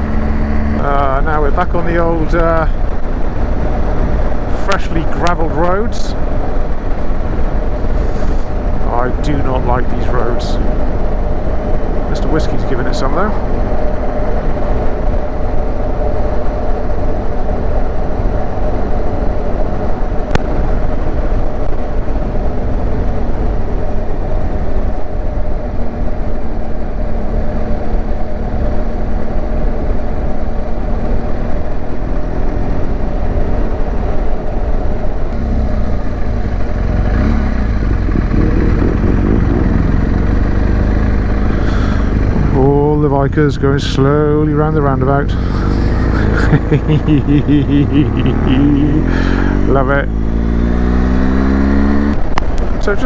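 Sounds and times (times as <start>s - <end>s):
motorcycle engine running: 0.0s - 1.5s, 35.3s - 52.6s
road noise: 0.0s - 53.0s
wind rush: 31.6s - 52.8s.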